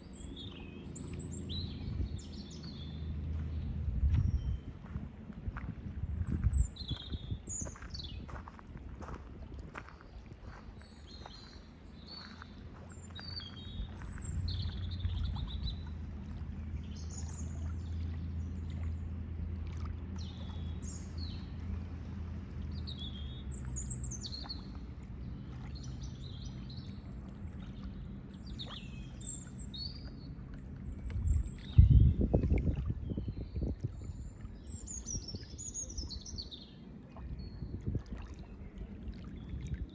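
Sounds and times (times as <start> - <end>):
low motor hum: 0.0 - 39.9
small birds chirping: 6.2 - 8.6, 10.5 - 16.0.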